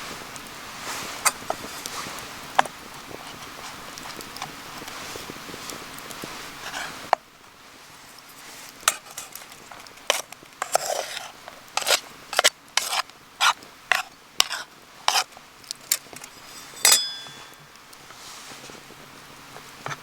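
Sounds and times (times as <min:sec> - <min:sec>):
metal utensil scraping cookware: 0:08.9 - 0:18.0.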